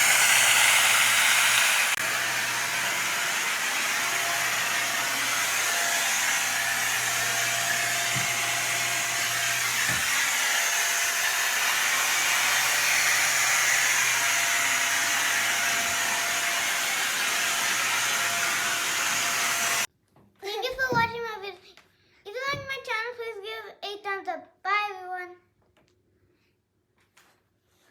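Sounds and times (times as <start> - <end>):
vacuum cleaner running: 0.0 - 19.9.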